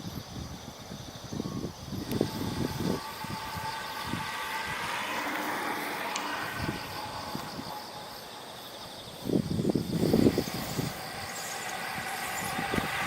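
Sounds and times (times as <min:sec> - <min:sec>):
vehicle passing: 0:02.1 - 0:13.0.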